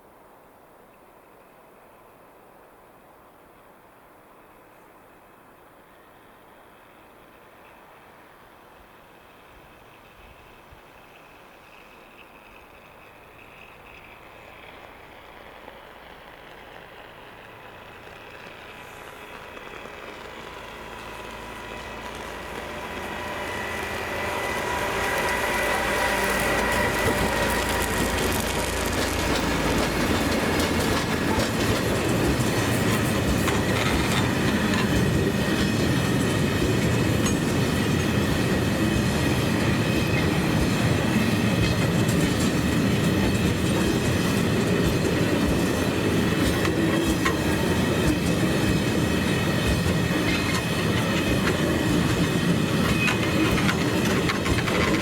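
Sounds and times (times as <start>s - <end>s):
train wheels on rails: 4.3s - 55.0s
rail joint clicks: 9.3s - 55.0s.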